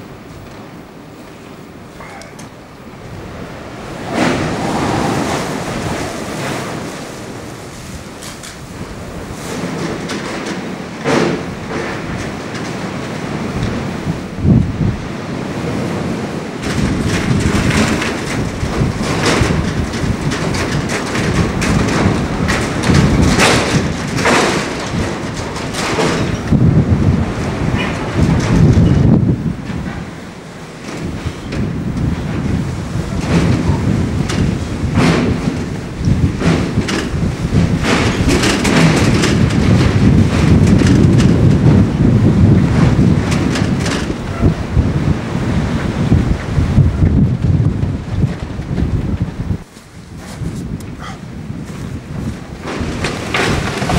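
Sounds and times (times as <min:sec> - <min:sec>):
gusting wind: 0:00.0 - 0:53.9
knocks and rattles: 0:09.2 - 0:14.2, 0:16.6 - 0:30.2, 0:30.8 - 0:49.5, 0:51.7 - 0:53.9.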